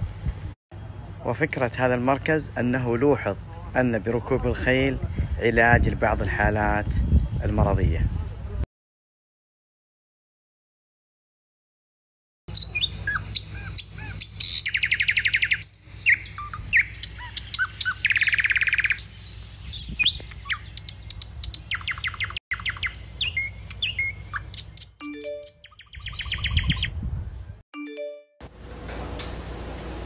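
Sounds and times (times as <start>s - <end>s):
small birds chirping and trilling: 0.8s - 8.2s, 12.5s - 27.1s.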